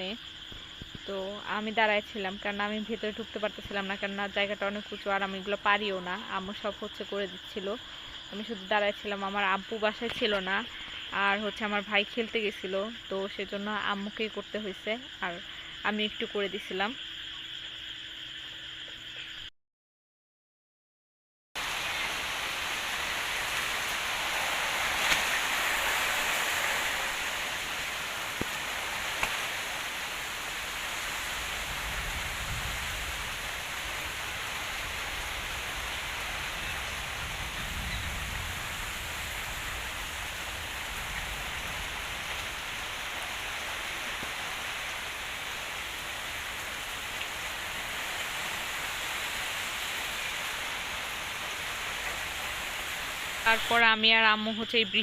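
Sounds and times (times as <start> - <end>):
wind gusts on microphone: 21.6 - 44.8
heavy rain: 21.6 - 54.0.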